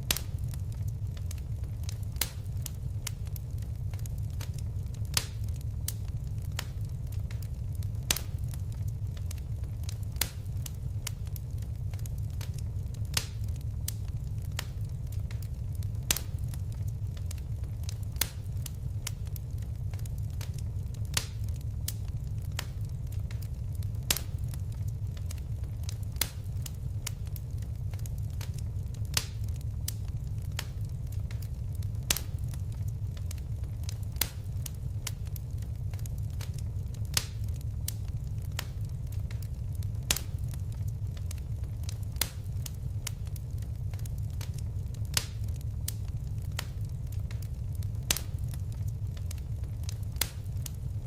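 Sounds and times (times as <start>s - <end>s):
fire crackling: 0.0s - 51.0s
fire popping: 0.0s - 51.0s.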